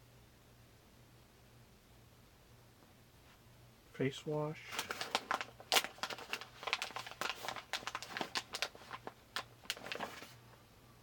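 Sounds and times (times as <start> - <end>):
packaging crinkling and rustling: 4.7 - 10.4.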